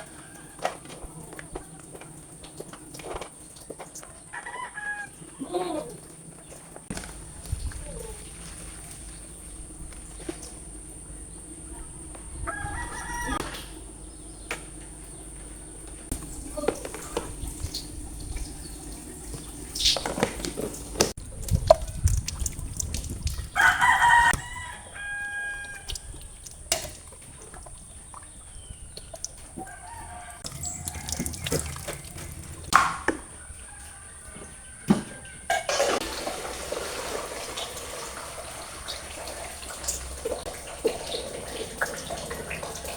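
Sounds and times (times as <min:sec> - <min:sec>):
rooster crowing: 0:00.0 - 0:01.1, 0:04.3 - 0:06.1, 0:12.3 - 0:13.8, 0:23.5 - 0:26.2, 0:29.4 - 0:32.6, 0:33.3 - 0:35.4
water sounds: 0:00.0 - 0:33.0, 0:35.5 - 0:42.9.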